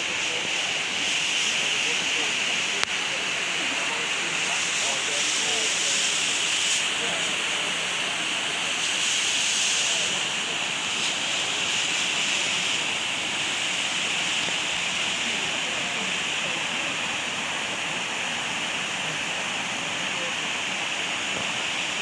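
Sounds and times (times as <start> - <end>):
steady forest hiss: 0.0 - 22.0.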